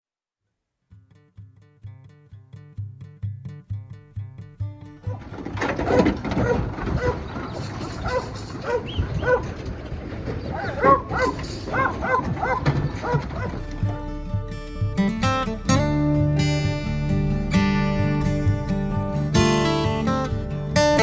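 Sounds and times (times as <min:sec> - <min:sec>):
guitar music: 0:00.9 - 0:06.6, 0:12.4 - 0:21.0
dog barking: 0:05.1 - 0:07.3, 0:08.0 - 0:09.6, 0:10.5 - 0:13.7.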